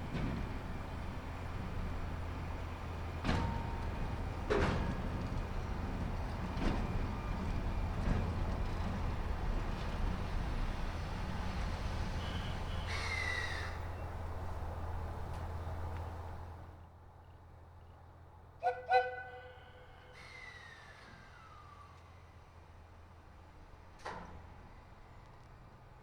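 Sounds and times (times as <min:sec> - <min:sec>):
train low hum: 0:00.0 - 0:26.0
falling squeal: 0:12.2 - 0:14.0, 0:18.9 - 0:22.0.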